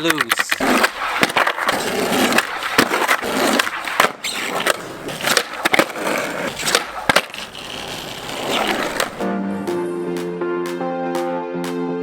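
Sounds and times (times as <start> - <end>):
skateboard clacking on ground: 0.0 - 9.2
skateboard wheels rolling on concrete: 0.0 - 9.4.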